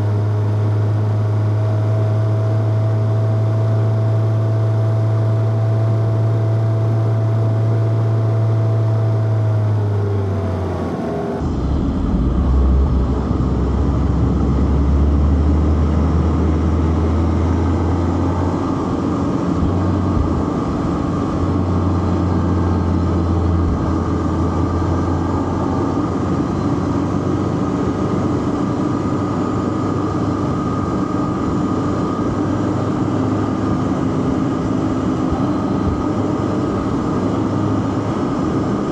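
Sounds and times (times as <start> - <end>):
car engine running: 0.0 - 38.9
road noise: 0.0 - 38.9.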